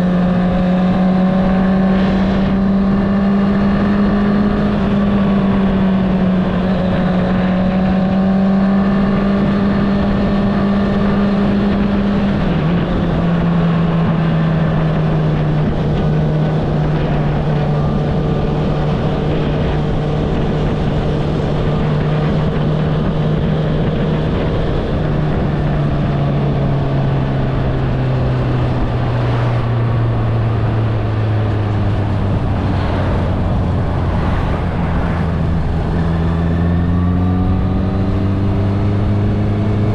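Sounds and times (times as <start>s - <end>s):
wind rushing: 29.9s - 39.0s.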